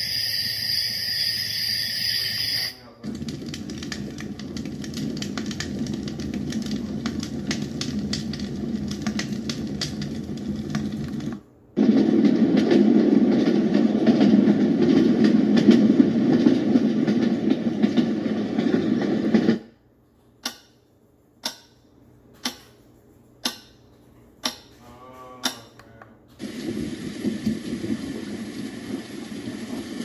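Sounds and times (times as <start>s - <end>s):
dense rushing noise: 26.4s - 30.0s.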